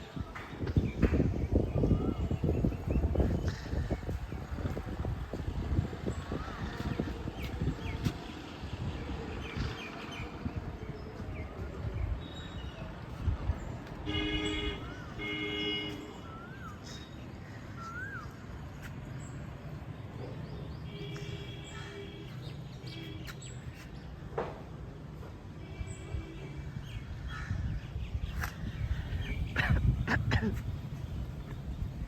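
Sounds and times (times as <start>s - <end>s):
steady low rumble: 0.8s - 12.3s
birds harsh calls: 27.2s - 32.0s.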